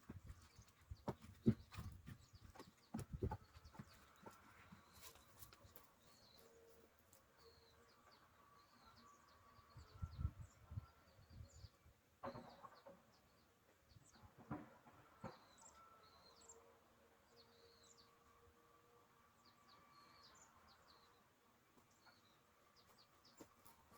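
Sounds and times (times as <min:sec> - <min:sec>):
small birds chirping: 0:00.0 - 0:14.4, 0:19.4 - 0:23.9.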